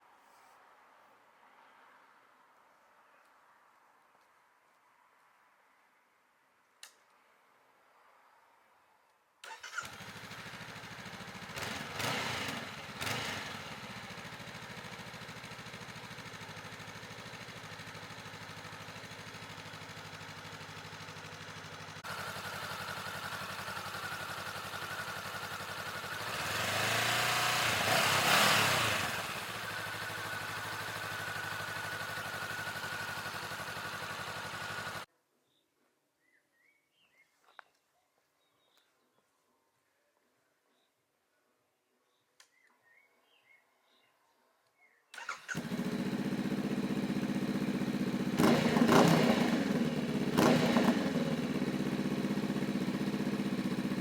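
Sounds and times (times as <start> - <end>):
motorcycle engine idling and revving: 9.4 - 35.1, 45.2 - 54.0.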